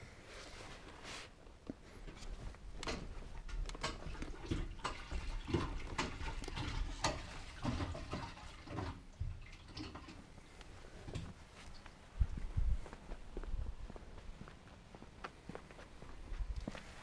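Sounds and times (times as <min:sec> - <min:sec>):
fuel sloshing in a tank: 0:03.4 - 0:10.6.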